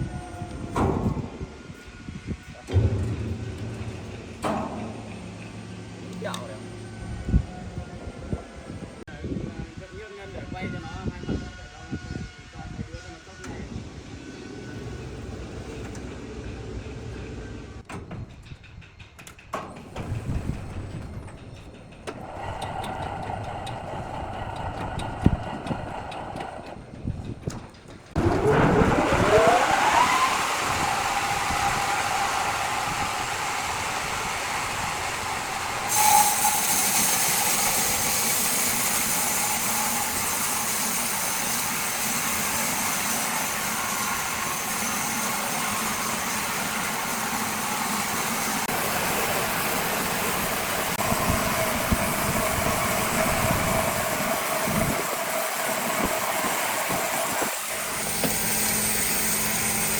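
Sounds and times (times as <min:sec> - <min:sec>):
machine motor whine: 0:28.2 - 0:59.9
loud steady hiss: 0:30.5 - 0:59.9.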